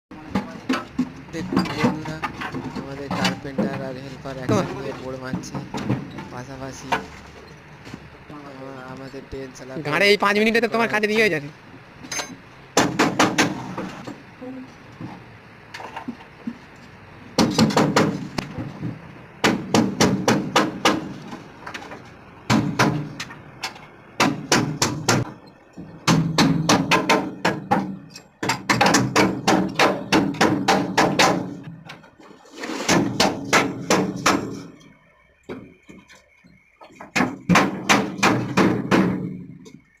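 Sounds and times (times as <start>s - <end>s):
hammers striking formwork: 12.2s - 14.1s, 17.4s - 21.5s, 22.5s - 23.3s, 24.2s - 31.7s, 32.8s - 34.8s, 37.0s - 39.6s.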